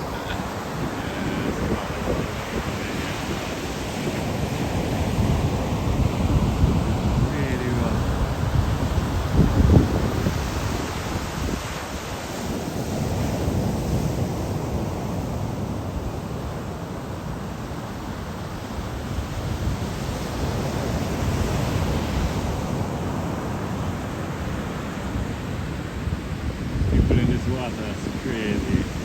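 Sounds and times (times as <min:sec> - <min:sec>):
wind rumbling on microphone: 0:00.0 - 0:17.4, 0:26.0 - 0:29.0
ocean surf washing ashore: 0:00.0 - 0:29.0.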